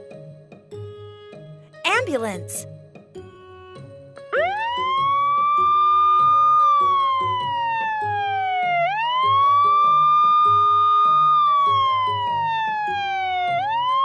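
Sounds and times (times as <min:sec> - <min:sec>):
children's music with steady beat: 0:01.9 - 0:02.6.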